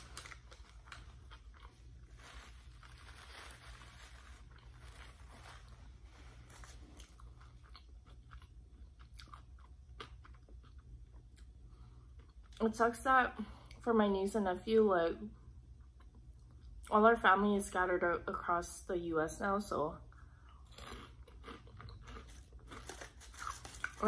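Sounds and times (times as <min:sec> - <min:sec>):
crunching snacks: 0:00.0 - 0:05.7, 0:20.6 - 0:24.0
chewing food: 0:00.2 - 0:02.1, 0:06.8 - 0:11.6, 0:20.2 - 0:24.0.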